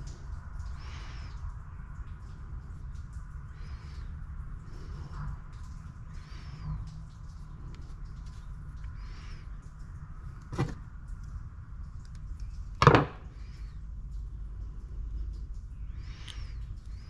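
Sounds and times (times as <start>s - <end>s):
steady low hum: 0.0s - 17.0s
pump parts knocking: 10.4s - 10.9s, 12.8s - 13.4s.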